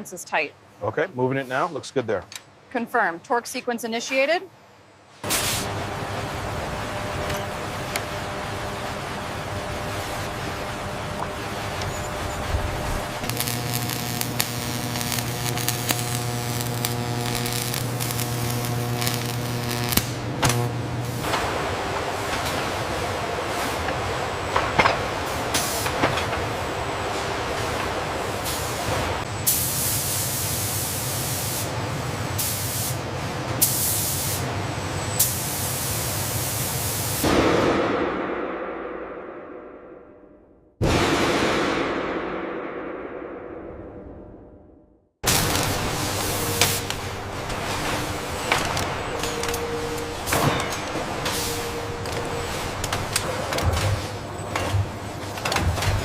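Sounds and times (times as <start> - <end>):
machine hum: 4.6 - 29.5, 42.2 - 56.0
steady machine tones: 5.7 - 24.6, 45.2 - 55.9
bursts of hissing: 12.7 - 20.2.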